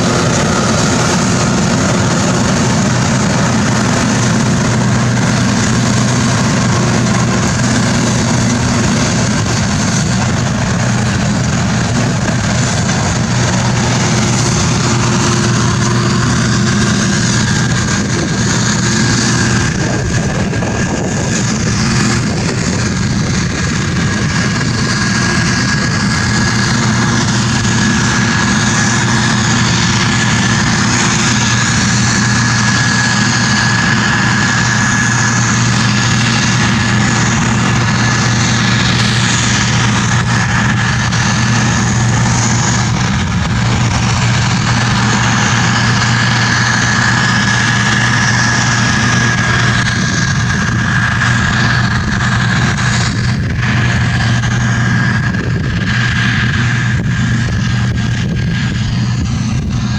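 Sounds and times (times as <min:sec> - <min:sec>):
combine engine drone: 0:00.0 - 0:59.9
thin steady high whine: 0:00.0 - 0:59.9.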